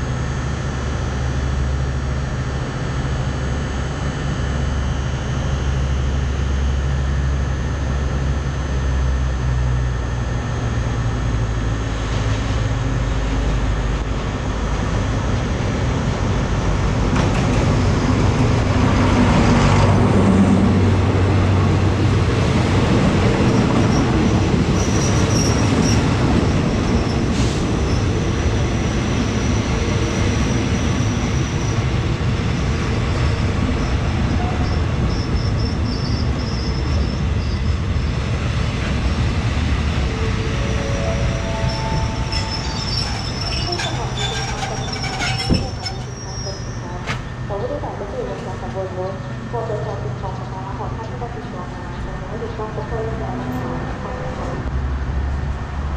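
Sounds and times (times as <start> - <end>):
diesel locomotive engine: 0.0 - 55.9
train wheel and rail noise: 0.0 - 55.9
high wheel squeal: 34.4 - 37.7, 40.5 - 46.9.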